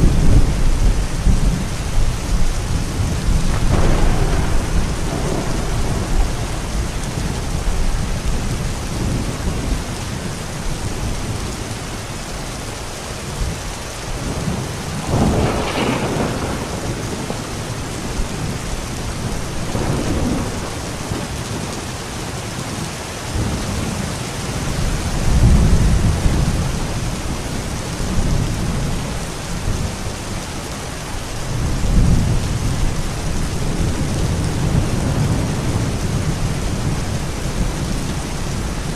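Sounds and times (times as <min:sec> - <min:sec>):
rolling thunder: 0:00.0 - 0:12.1, 0:13.3 - 0:30.4, 0:31.2 - 0:38.9
heavy rain: 0:00.0 - 0:38.9.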